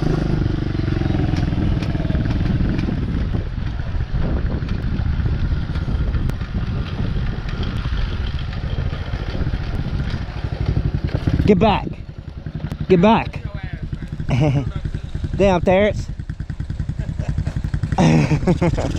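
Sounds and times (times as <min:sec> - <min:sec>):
dirt bike engine running: 0:00.0 - 0:18.9.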